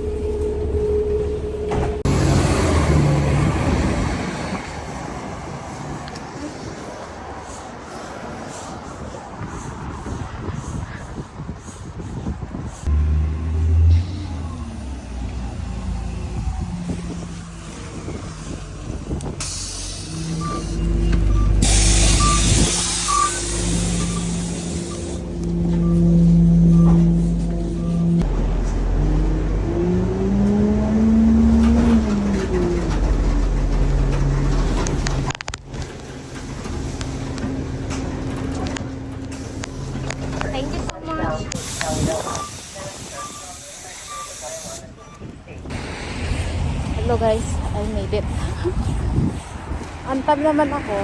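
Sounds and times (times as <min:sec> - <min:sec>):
engine whine: 0:00.0 - 0:07.6, 0:12.8 - 0:43.4
bus engine and road noise: 0:00.0 - 0:51.0
air hissing: 0:18.4 - 0:26.1, 0:41.6 - 0:45.0
short high beeps: 0:20.4 - 0:25.2.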